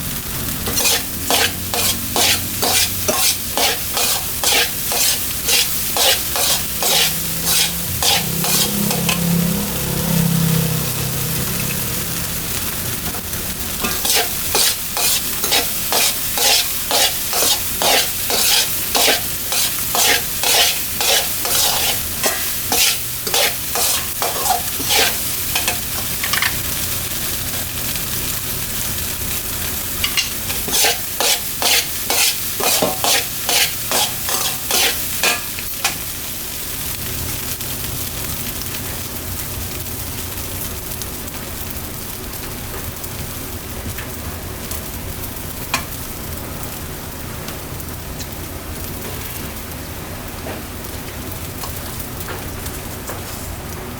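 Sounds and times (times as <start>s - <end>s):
fried rice sizzling in a pan: 0.0s - 53.9s
spatula scraping and tossing: 0.6s - 9.5s, 13.7s - 26.6s, 30.0s - 36.0s.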